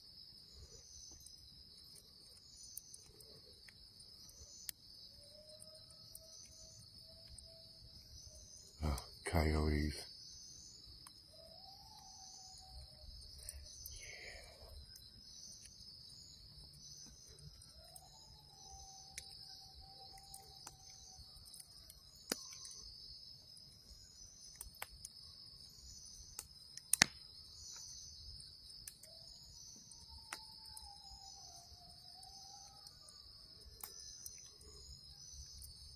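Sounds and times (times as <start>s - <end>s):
crickets chirping: 0.0s - 35.9s
distant coyotes howling: 10.5s - 24.6s, 28.9s - 35.9s
sharp pops or clicks: 26.8s - 27.2s.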